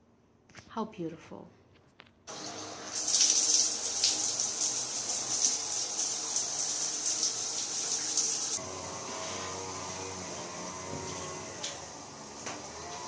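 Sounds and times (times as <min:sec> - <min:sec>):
water running: 0:02.3 - 0:08.6.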